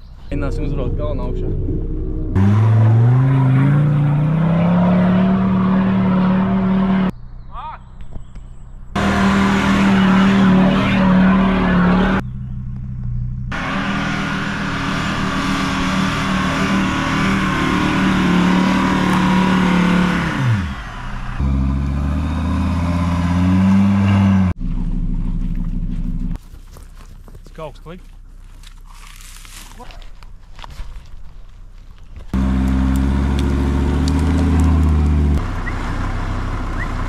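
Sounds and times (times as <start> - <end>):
diesel car engine revving: 0.5 - 7.1, 8.9 - 26.4, 32.3 - 37.0.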